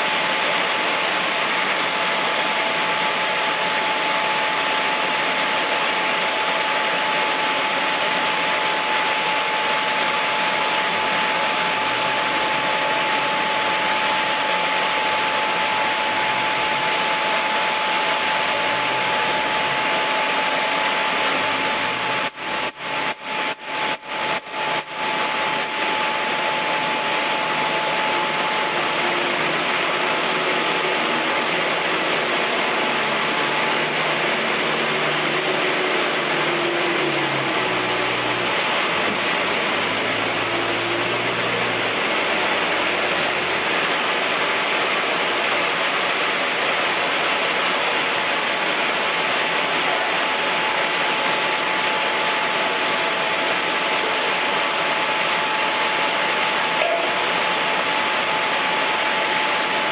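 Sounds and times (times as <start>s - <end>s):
steady tone: 49.8s - 59.9s.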